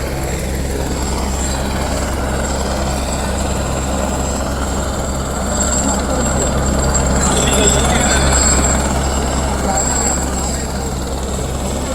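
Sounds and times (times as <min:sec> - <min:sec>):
helicopter engine and rotor: 0:00.0 - 0:11.9.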